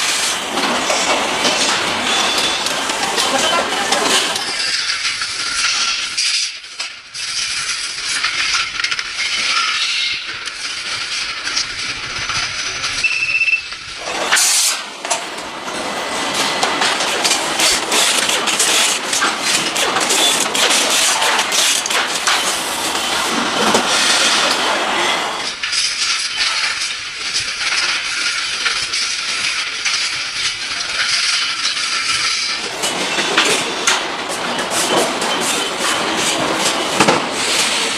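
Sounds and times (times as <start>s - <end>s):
loud clatter: 13.8s - 24.6s
hiss of air: 14.3s - 15.0s.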